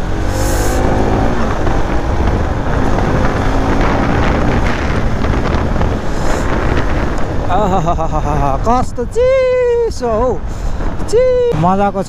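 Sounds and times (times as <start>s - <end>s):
motorcycle engine: 0.0s - 8.7s
wind buffeting microphone: 0.0s - 12.0s.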